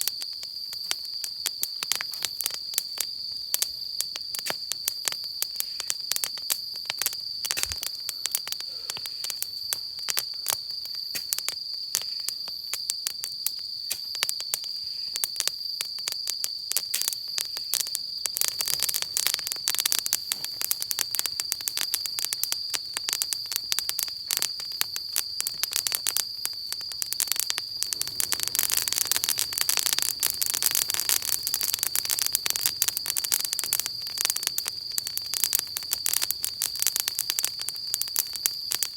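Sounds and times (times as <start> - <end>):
insect chirr: 0.0 - 38.9
wood fire crackling: 0.0 - 38.9.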